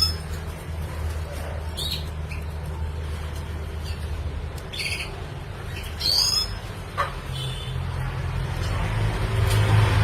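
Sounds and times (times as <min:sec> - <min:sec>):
buzzy bird chirp: 0:03.8 - 0:06.7.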